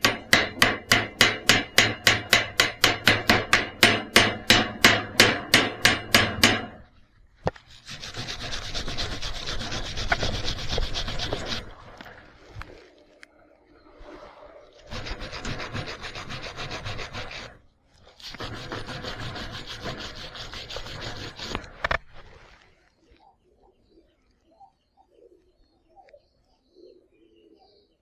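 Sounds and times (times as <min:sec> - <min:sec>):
rhythmic scraping on metal: 0:00.0 - 0:06.9, 0:07.8 - 0:11.6, 0:14.9 - 0:17.6, 0:18.2 - 0:21.6
steady rasping: 0:00.0 - 0:06.9, 0:07.6 - 0:11.8, 0:14.9 - 0:17.6, 0:18.2 - 0:22.0.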